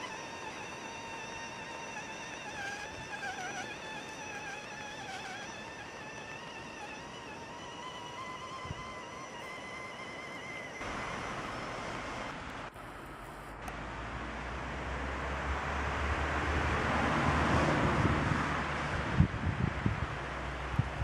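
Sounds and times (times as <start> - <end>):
vehicle passing by: 13.7 - 20.8.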